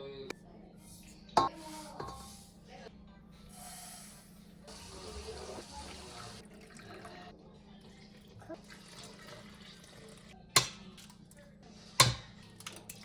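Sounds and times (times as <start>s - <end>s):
water running from a tap: 4.7s - 7.3s, 8.5s - 10.3s.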